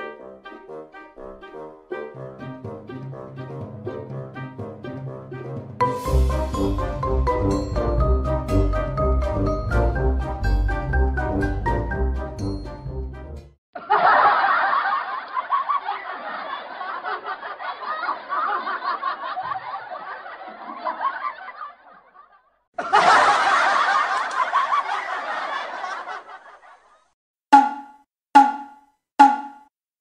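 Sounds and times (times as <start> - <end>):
laughter: 13.8 - 27.1.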